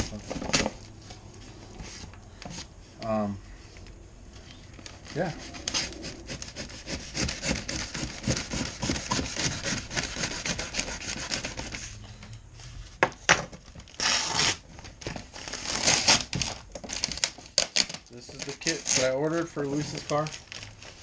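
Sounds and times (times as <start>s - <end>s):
packaging rustling: 0.0s - 2.7s, 13.5s - 21.0s
packaging rubbing and scraping: 0.0s - 3.2s, 4.4s - 12.0s, 13.6s - 21.0s.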